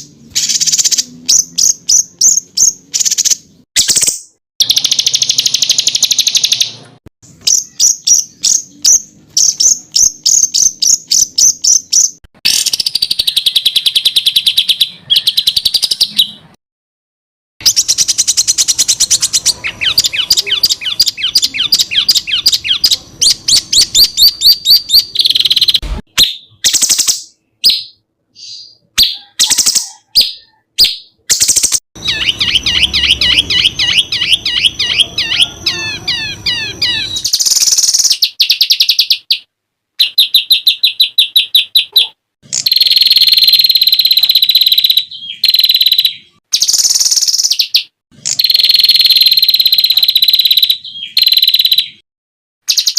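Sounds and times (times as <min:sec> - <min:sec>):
high buzzing bird trill: 0:00.0 - 0:06.8, 0:17.6 - 0:25.8, 0:31.4 - 0:39.2, 0:42.5 - 0:47.6, 0:48.2 - 0:52.0
songbirds trilling: 0:07.4 - 0:16.4, 0:17.6 - 0:25.8, 0:32.0 - 0:39.2.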